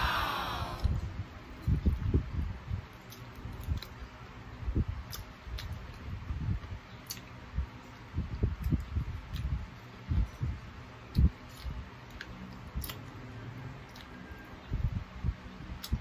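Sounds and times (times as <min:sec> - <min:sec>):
chewing and gnawing: 0:02.8 - 0:04.3, 0:05.0 - 0:15.0, 0:15.7 - 0:16.0.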